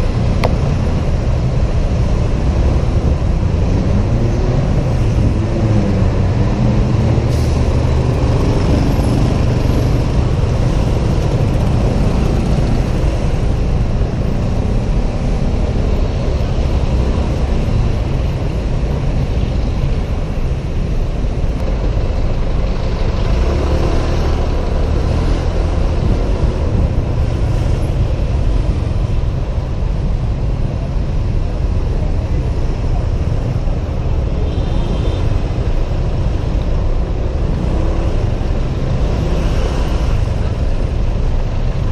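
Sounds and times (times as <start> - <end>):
wind rumble on microphone: 0.0 - 34.4.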